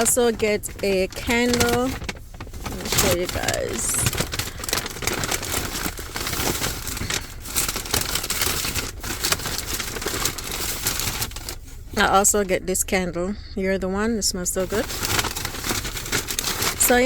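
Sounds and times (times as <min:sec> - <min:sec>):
shopping bag crinkling: 0:00.0 - 0:12.5, 0:14.6 - 0:17.0.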